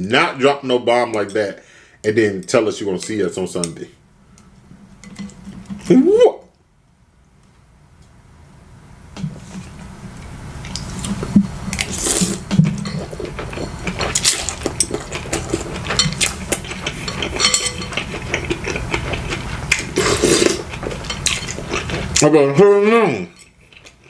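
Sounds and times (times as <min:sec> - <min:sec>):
chopsticks clinking against bowl: 0:14.1 - 0:18.8.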